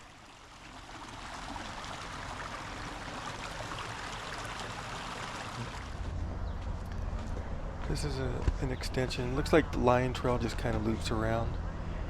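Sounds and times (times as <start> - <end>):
brook over small waterfall: 0.0 - 6.1.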